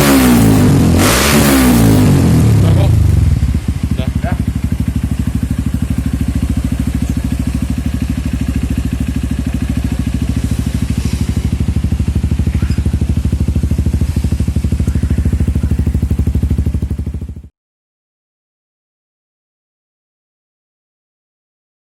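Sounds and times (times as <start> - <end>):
motorcycle idling: 0.0 - 17.5.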